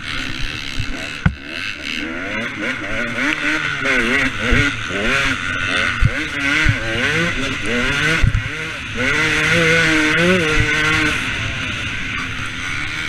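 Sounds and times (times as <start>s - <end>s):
motocross bike engine revving: 0.0s - 13.0s
sharp thumps: 0.4s - 1.6s.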